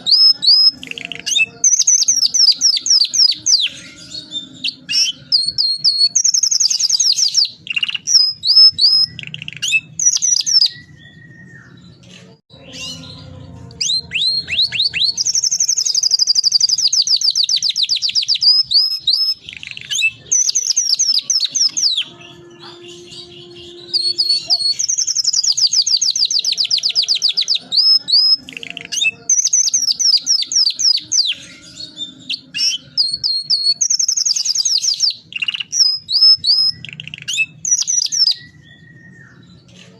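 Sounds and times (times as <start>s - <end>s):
canary rolling trills: 0.0s - 11.0s.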